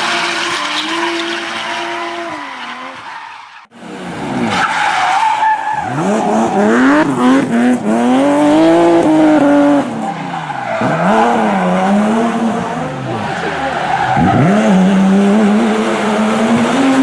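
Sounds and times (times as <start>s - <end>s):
engine revving: 10.8s - 17.0s.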